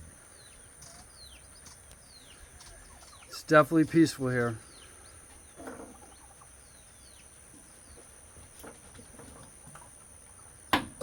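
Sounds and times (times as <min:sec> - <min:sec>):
faint bird chirps: 0:00.0 - 0:08.2.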